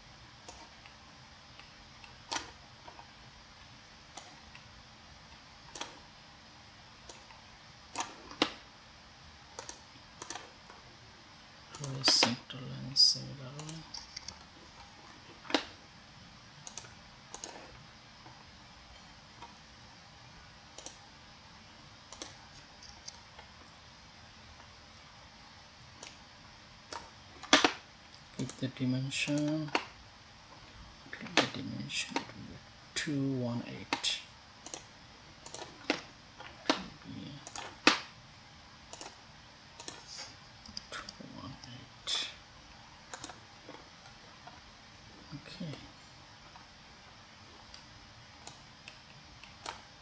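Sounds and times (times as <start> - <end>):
computer mouse clicks: 0.4 - 4.7, 5.6 - 6.1, 7.0 - 8.6, 9.5 - 10.8, 13.6 - 15.8, 16.6 - 18.4, 20.7 - 21.1, 22.1 - 23.8, 25.5 - 26.3, 26.9 - 30.0, 34.6 - 38.1, 38.9 - 41.8, 43.1 - 44.6, 47.6 - 50.0.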